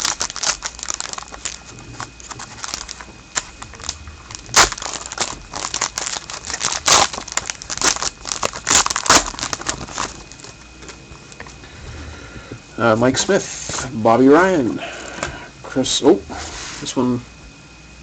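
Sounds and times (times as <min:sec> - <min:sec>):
card pack wrapper crinkling: 0:00.0 - 0:11.4.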